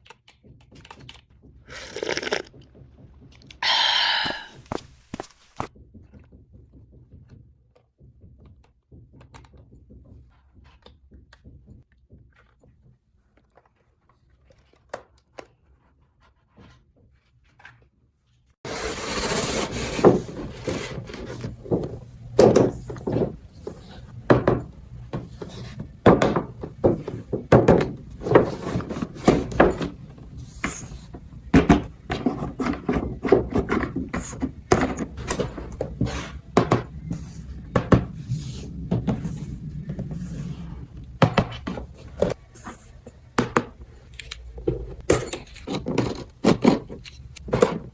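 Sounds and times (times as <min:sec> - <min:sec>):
toy pieces knocking and clicking: 0:01.7 - 0:02.5.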